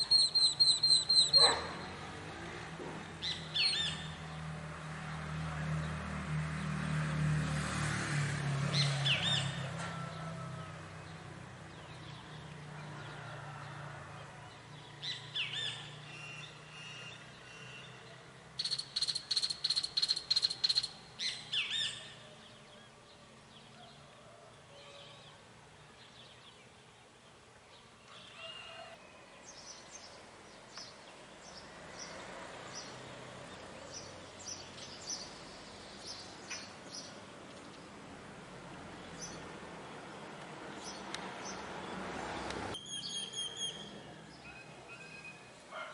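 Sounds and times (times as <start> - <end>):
birds singing and calling: 0.0 - 2.0, 2.9 - 4.2, 14.5 - 24.0, 26.0 - 37.9, 42.8 - 45.6.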